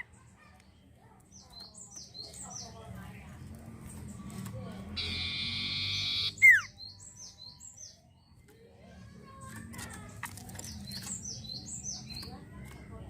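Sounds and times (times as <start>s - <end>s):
bird chirps: 4.0s - 8.6s, 9.9s - 12.5s
bird trilling and whistling: 5.0s - 7.9s.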